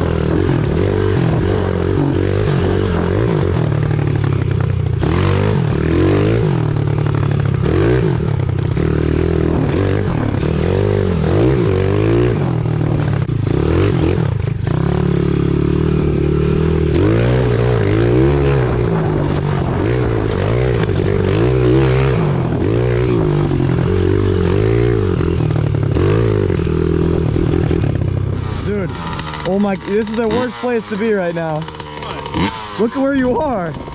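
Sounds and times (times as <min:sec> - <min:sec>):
pit bike engine revving: 0:00.0 - 0:33.9
bike scraping and clattering: 0:23.8 - 0:32.9.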